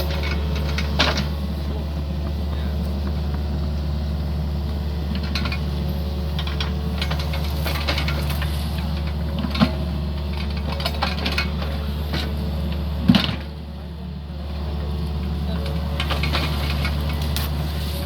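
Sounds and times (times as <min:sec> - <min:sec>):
excavator bucket clanks and knocks: 0:00.0 - 0:03.5, 0:05.0 - 0:13.6, 0:15.6 - 0:17.5
excavator diesel engine running: 0:00.0 - 0:18.0.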